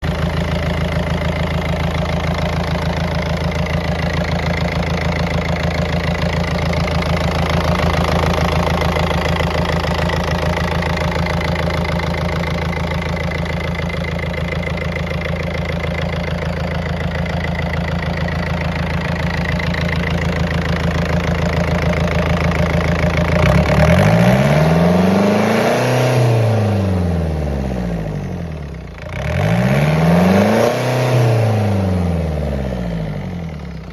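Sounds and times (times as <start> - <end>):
marine diesel engine idling and revving: 0.0 - 33.9.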